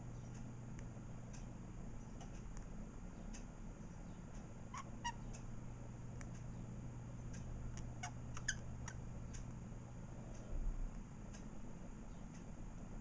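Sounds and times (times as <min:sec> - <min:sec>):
budgerigars chirping: 0:04.7 - 0:05.3, 0:07.8 - 0:09.0.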